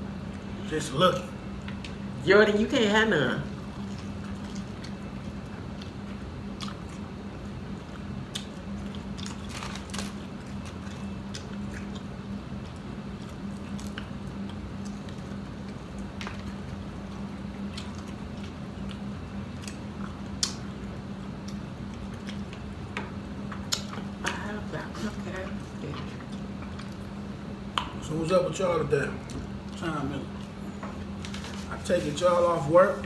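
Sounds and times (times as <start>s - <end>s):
chewing fried chicken: 3.4s - 33.0s.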